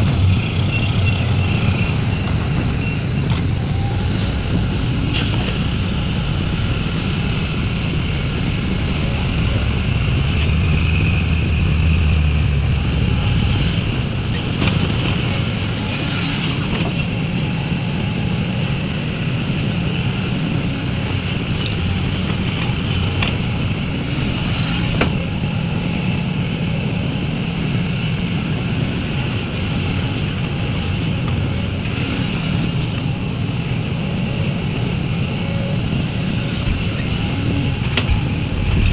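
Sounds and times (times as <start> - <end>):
heavy diesel machinery running: 0.0 - 38.9.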